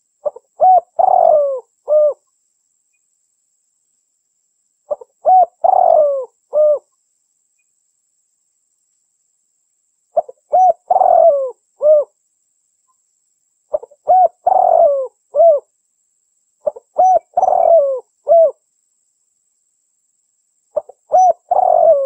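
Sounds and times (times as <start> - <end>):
dove cooing: 0.2 - 2.2, 4.9 - 6.9, 10.2 - 12.1, 13.7 - 15.7, 16.6 - 18.6, 20.8 - 22.0.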